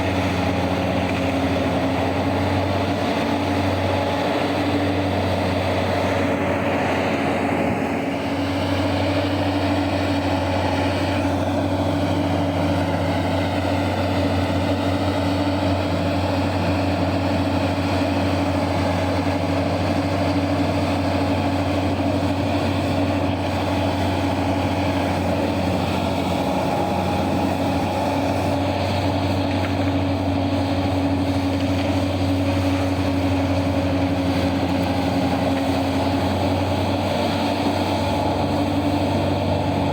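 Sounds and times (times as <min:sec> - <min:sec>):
deep diesel engine drone: 0:00.0 - 0:39.9.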